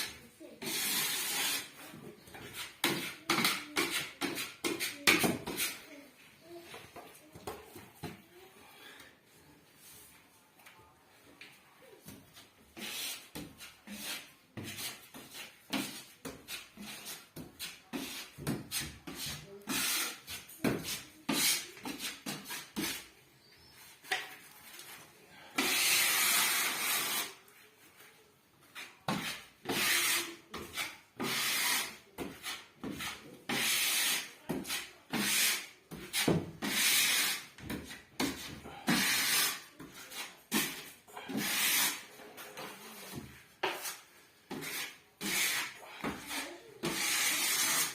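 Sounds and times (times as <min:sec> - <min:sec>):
putty knife scraping plasterboard: 0:00.0 - 0:05.9, 0:12.7 - 0:23.2, 0:25.5 - 0:27.4, 0:28.8 - 0:47.9.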